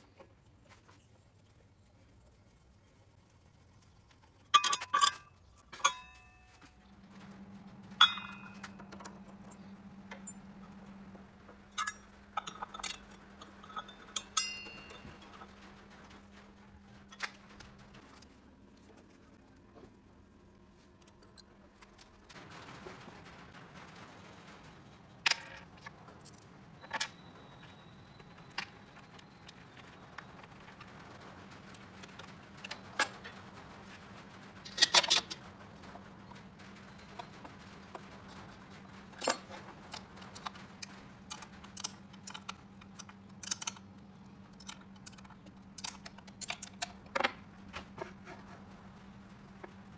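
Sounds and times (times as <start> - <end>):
faint steady hum: 0.0 - 34.6
metallic clinks: 4.6 - 11.0, 11.7 - 15.7.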